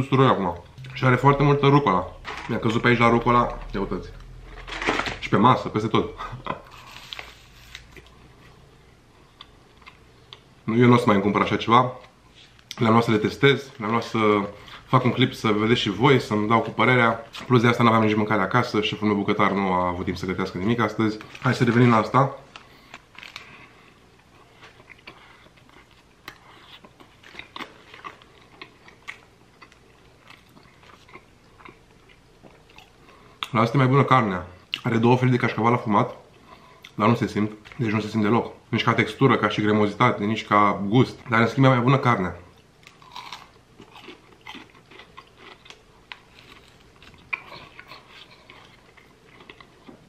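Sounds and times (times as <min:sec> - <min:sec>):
chewing crunchy food: 0:22.4 - 0:33.6, 0:42.5 - 0:50.0
person biting and chewing: 0:42.8 - 0:50.0.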